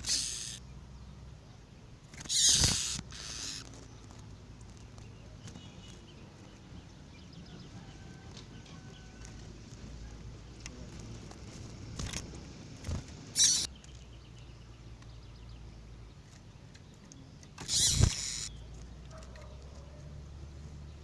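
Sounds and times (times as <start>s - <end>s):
bird calling: 0.0s - 0.7s, 2.2s - 4.3s, 13.3s - 14.0s, 17.0s - 20.0s.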